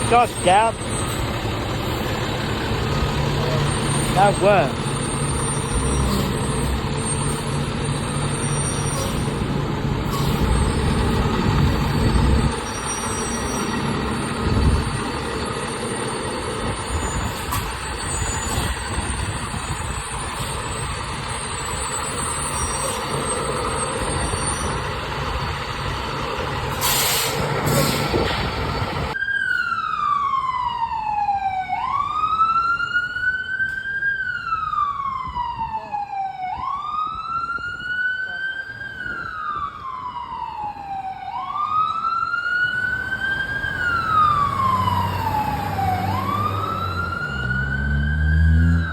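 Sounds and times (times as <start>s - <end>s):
siren wailing: 0.0s - 9.5s, 29.1s - 48.9s
fire truck diesel engine: 0.0s - 48.9s
road noise: 0.0s - 48.9s.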